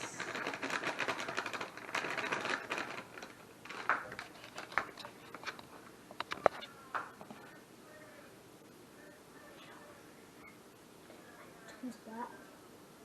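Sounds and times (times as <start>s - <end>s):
powder bag rustling: 0.0s - 5.5s.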